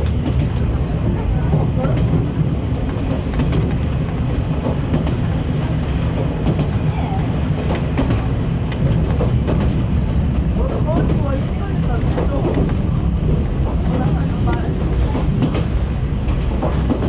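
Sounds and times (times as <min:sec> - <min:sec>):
rail clicks: 0:00.0 - 0:17.0
train rumble from inside carriage: 0:00.0 - 0:17.0.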